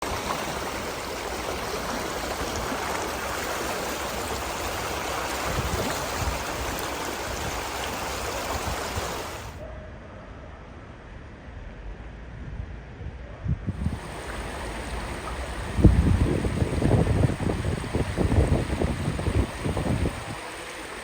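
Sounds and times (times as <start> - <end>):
floodwater rushing: 0.0 - 9.6, 13.8 - 21.0.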